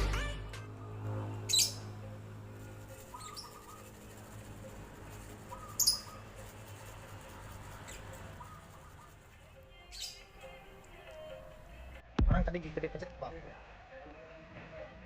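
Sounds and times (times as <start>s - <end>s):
lovebird chirping: 3.0s - 3.9s, 5.4s - 6.4s, 7.7s - 10.6s.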